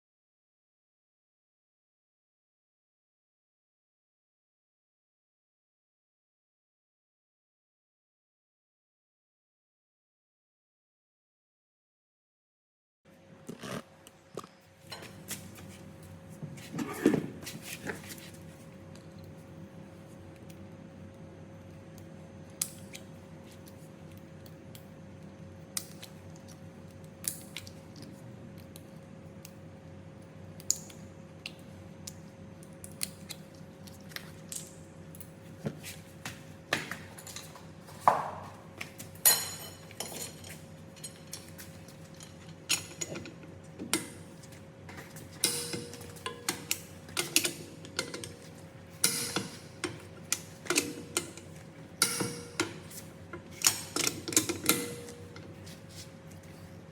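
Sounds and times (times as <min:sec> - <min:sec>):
faint steady hum: 0:13.1 - 0:56.9
metal tools clinking and knocking: 0:39.2 - 0:41.4, 0:49.0 - 0:50.0, 0:52.0 - 0:52.8.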